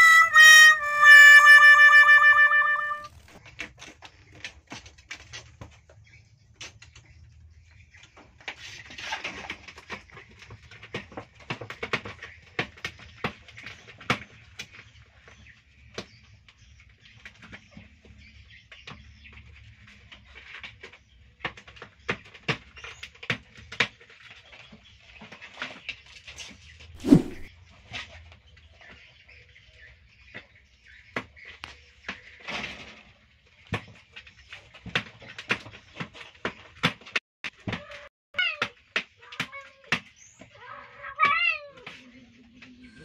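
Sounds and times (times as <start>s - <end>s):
animals scuffling on fabric: 27.0s - 27.5s.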